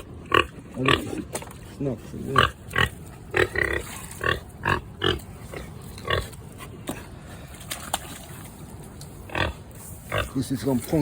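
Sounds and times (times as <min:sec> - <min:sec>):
pig grunting: 0:00.0 - 0:07.2, 0:09.2 - 0:10.5.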